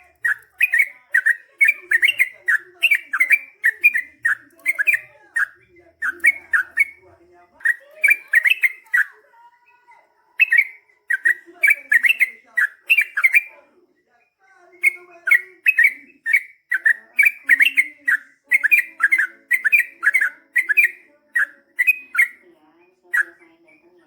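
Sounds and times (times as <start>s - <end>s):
bird singing whistled notes: 0.0s - 7.0s, 10.4s - 13.5s, 14.8s - 22.4s.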